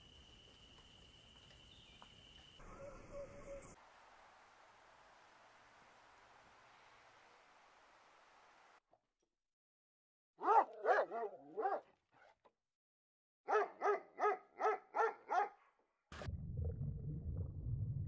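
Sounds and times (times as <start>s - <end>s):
dog barking: 10.4s - 12.4s, 13.5s - 15.8s
steady low rumble: 16.2s - 18.0s.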